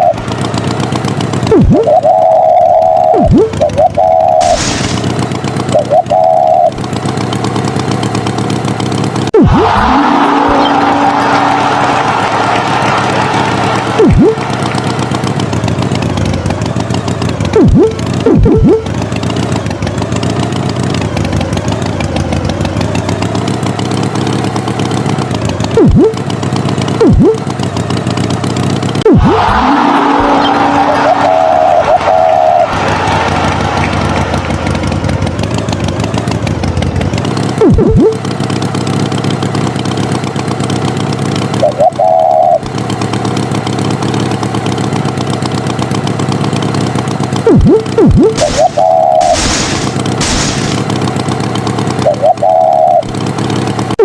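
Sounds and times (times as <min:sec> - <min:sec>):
cartoon tractor engine running: 0:00.0 - 0:54.0
swooping tone: 0:01.4 - 0:06.8, 0:09.4 - 0:11.8, 0:13.8 - 0:15.1, 0:17.6 - 0:18.9, 0:25.8 - 0:26.2, 0:27.0 - 0:27.5, 0:29.0 - 0:32.8, 0:47.4 - 0:51.0
tractor engine putter: 0:42.7 - 0:52.2.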